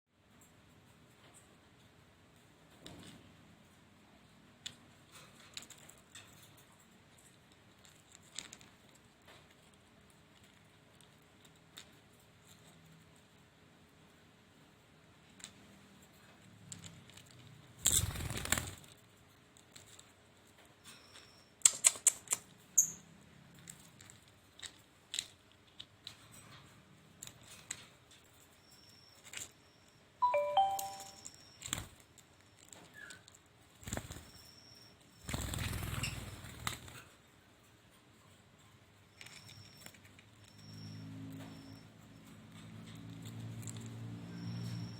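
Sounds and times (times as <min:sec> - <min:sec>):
sharp clicks: 0:21.6 - 0:22.5.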